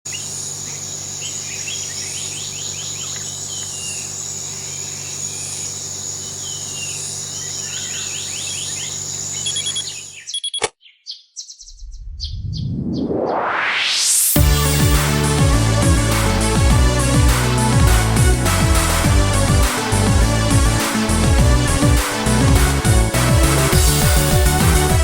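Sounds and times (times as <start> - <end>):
birds chirping: 0.1 - 13.1
low hum: 11.6 - 20.7
rising synth sweep: 11.7 - 19.2.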